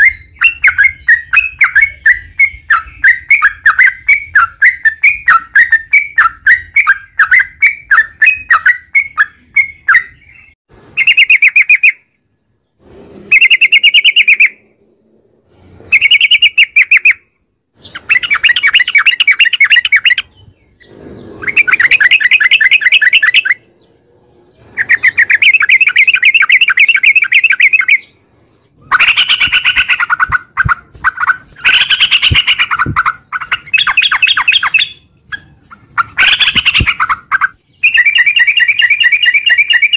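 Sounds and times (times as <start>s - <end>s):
bird singing bubbly trills: 0.0s - 12.1s, 15.9s - 35.1s, 36.2s - 39.9s.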